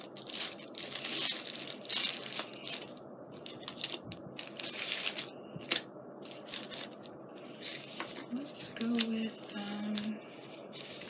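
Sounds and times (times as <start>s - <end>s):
crinkling and rustling of supplies: 0.0s - 9.2s.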